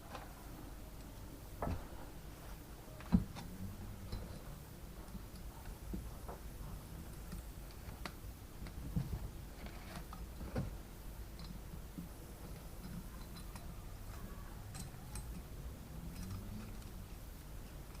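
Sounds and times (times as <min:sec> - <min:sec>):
low steady hum: 0:00.0 - 0:18.0
small metal parts clicking: 0:12.4 - 0:18.0
clicks of metal parts and tools: 0:12.8 - 0:15.5.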